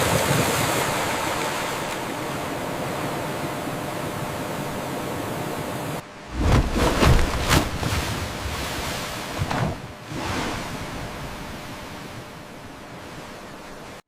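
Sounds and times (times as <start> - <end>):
rushing water: 0.0 - 11.9
low water splashing and thumps: 6.3 - 12.2.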